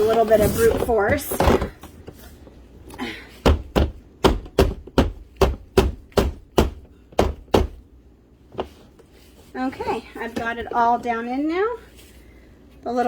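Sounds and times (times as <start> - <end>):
plastic panels knocked: 3.4 - 7.8.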